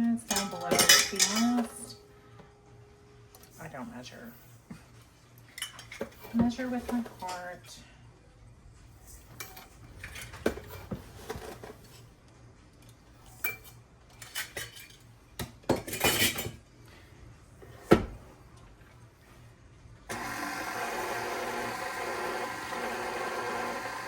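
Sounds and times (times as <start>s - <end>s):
bowls and utensils clinking: 0.3s - 2.0s, 5.5s - 7.5s, 13.3s - 16.6s
electric mixer motor running: 20.1s - 24.0s.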